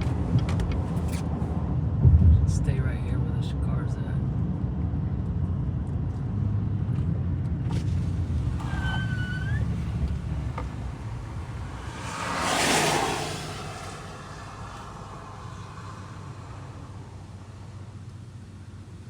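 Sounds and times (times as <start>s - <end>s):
low rumble: 0.0s - 18.8s
vehicle passing close by: 9.7s - 17.9s.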